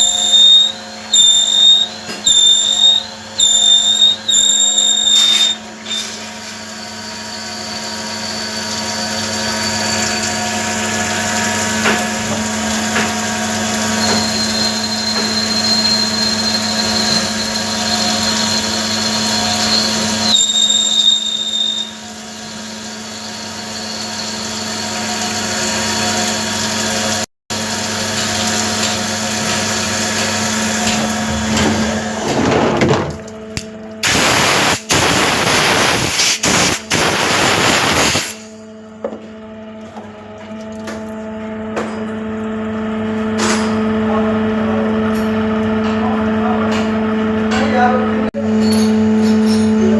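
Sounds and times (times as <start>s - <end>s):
metal-cutting machine humming: 0.0s - 49.9s
thin high whine: 34.0s - 38.8s.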